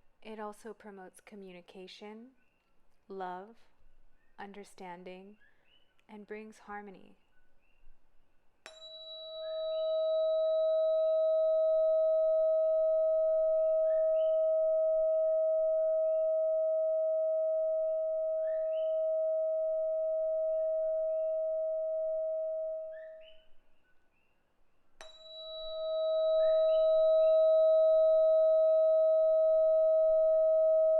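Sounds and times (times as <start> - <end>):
tuning fork ringing: 8.6 - 23.4, 25.0 - 30.9.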